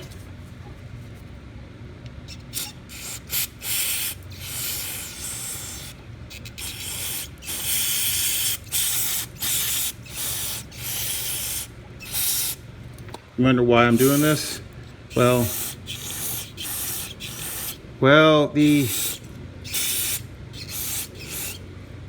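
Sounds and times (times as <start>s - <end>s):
aerosol spray can hissing: 2.3s - 12.6s, 13.9s - 17.8s, 18.6s - 21.6s.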